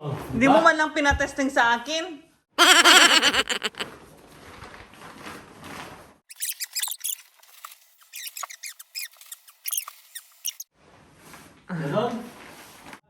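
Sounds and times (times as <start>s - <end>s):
short high squeaks: 2.6s - 3.8s.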